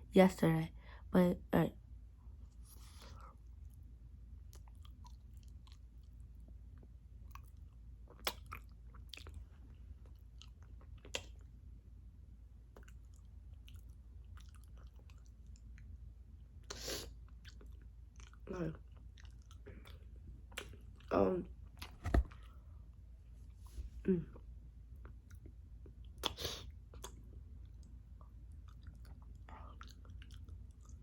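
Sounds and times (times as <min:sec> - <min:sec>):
person chewing food: 0:04.5 - 0:11.5, 0:12.7 - 0:16.0, 0:16.6 - 0:20.8, 0:25.0 - 0:31.0.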